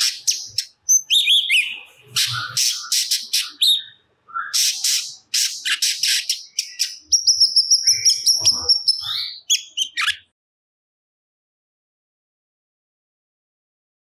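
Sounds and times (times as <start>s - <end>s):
bird singing sharp chirps: 0.0s - 10.3s.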